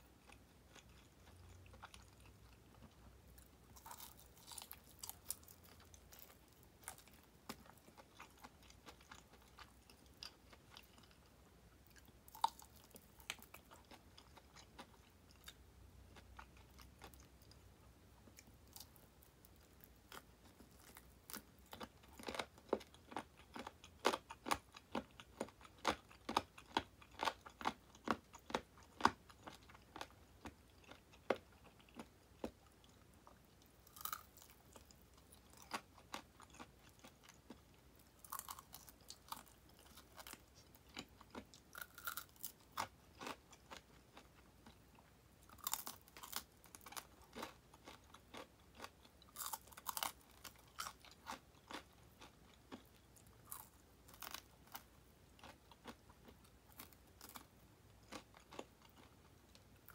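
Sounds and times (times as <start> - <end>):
person crunching fried chicken: 3.7 - 11.2, 12.0 - 14.9, 33.8 - 37.5, 38.1 - 43.9, 45.5 - 56.0.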